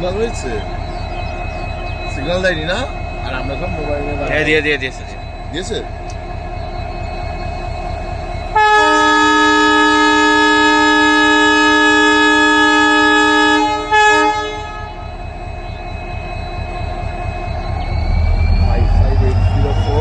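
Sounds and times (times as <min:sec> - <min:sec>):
diesel locomotive engine humming: 0:00.0 - 0:20.0
locomotive air horn blasts: 0:08.5 - 0:15.3.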